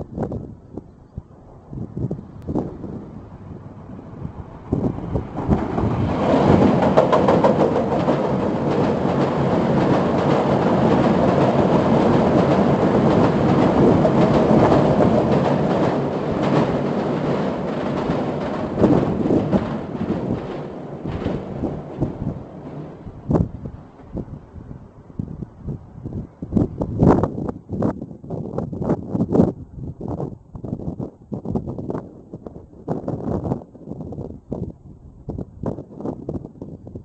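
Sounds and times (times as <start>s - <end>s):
train wheels rumbling on bridge: 0.0s - 37.0s
clatter of knocks: 6.4s - 11.6s.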